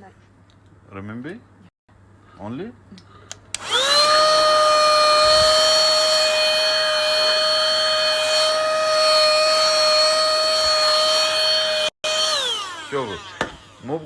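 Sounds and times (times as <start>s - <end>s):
vacuum cleaner motor whine: 3.6s - 14.0s.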